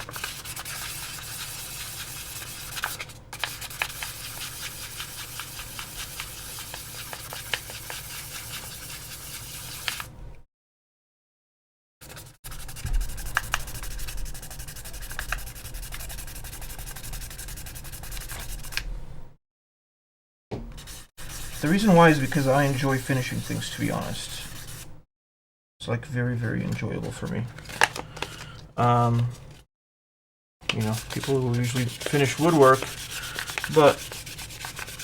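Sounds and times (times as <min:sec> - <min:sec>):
sandpaper rubbing on plastic: 0:00.0 - 0:10.1, 0:12.0 - 0:18.9, 0:20.8 - 0:24.9, 0:30.8 - 0:35.0.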